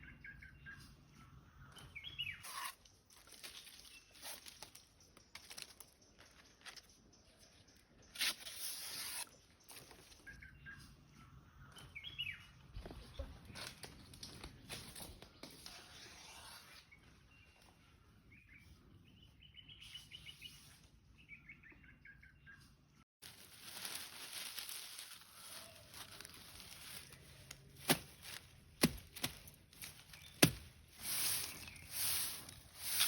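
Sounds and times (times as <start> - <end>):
small birds chirping: 0.0 - 3.1, 9.2 - 15.4, 16.9 - 33.0
soft rustling: 23.2 - 33.0.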